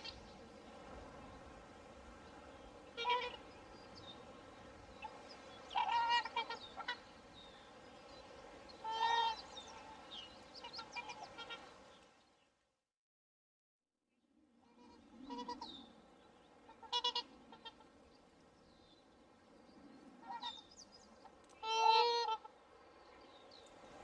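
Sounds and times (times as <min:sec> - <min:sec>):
swans calling: 0:00.0 - 0:00.2, 0:02.8 - 0:04.3, 0:05.0 - 0:07.8, 0:08.8 - 0:11.8, 0:14.8 - 0:16.0, 0:16.6 - 0:18.0, 0:20.2 - 0:22.6
steady background hiss: 0:00.0 - 0:12.4, 0:14.6 - 0:24.0.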